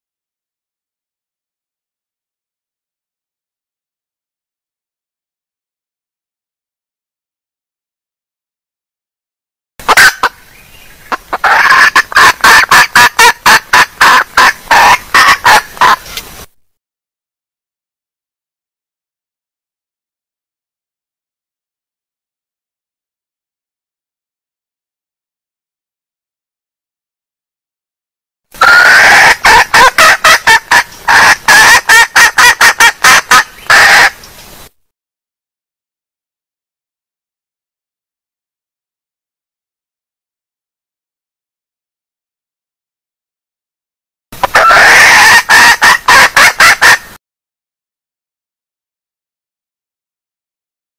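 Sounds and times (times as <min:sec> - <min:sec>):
hen clucking calls: 0:09.8 - 0:16.3, 0:28.6 - 0:34.3, 0:44.4 - 0:47.1
short clucks: 0:09.9 - 0:10.3.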